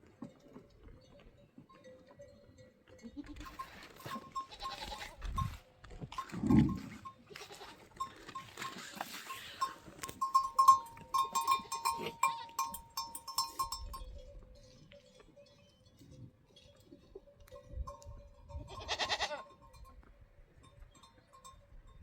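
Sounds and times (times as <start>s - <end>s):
goats bleating: 3.0s - 5.6s, 7.2s - 8.0s, 11.4s - 12.8s, 18.7s - 19.5s
short high clinks: 8.0s - 14.1s.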